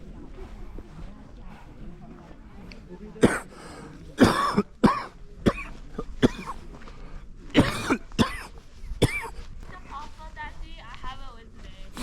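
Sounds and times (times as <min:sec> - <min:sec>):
person coughing: 0:03.2 - 0:03.6, 0:04.2 - 0:06.6, 0:07.6 - 0:09.4.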